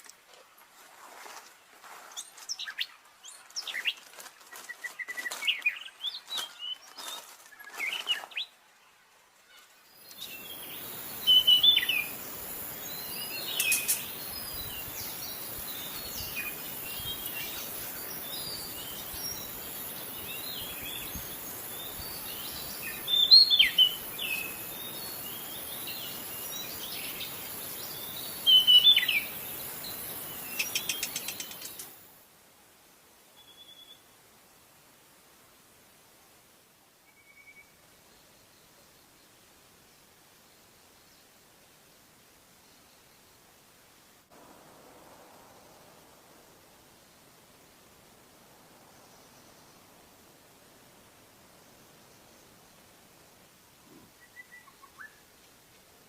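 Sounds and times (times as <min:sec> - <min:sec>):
steady hiss: 0:00.0 - 0:56.0
bird singing whistled phrases: 0:37.1 - 0:37.7, 0:54.2 - 0:55.2.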